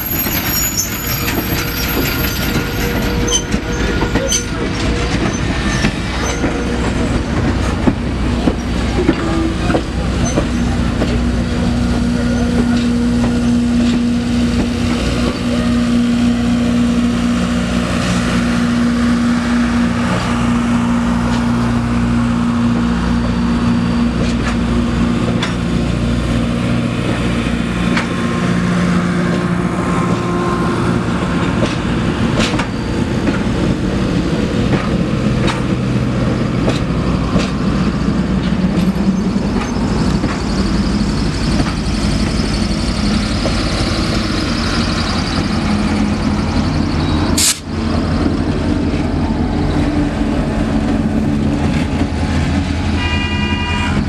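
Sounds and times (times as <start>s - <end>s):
diesel locomotive passing: 0.0s - 54.0s
train wheels rumbling on rails: 0.0s - 54.0s
train horn: 52.9s - 54.0s.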